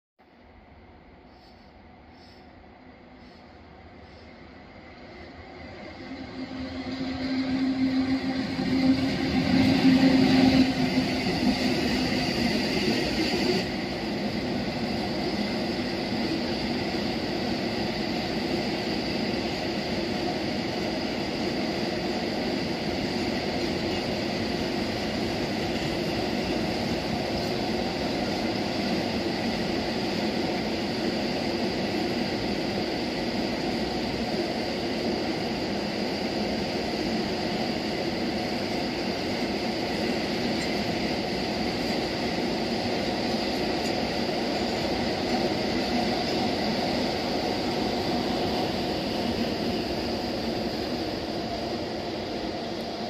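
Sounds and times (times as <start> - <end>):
electric locomotive hum: 0.3 - 53.0
faint high whine: 0.5 - 15.9.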